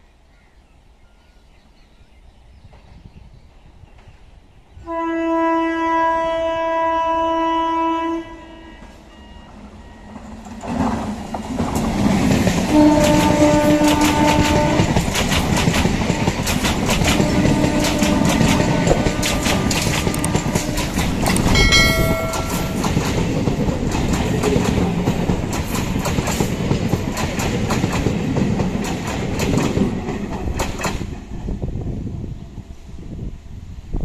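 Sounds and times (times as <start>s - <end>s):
train horn blast: 4.8s - 10.1s, 12.7s - 15.0s, 17.0s - 23.2s
train rushing past: 8.5s - 33.9s.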